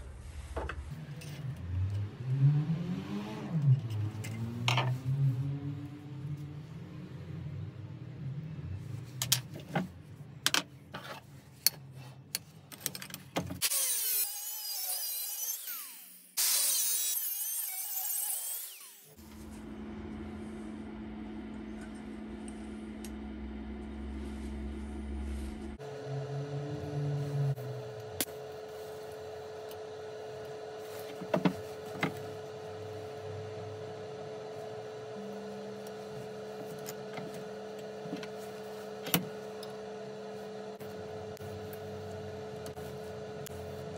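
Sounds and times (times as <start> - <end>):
low motor hum: 0.0 - 10.8, 19.1 - 43.9
power tool cutting: 13.6 - 19.2.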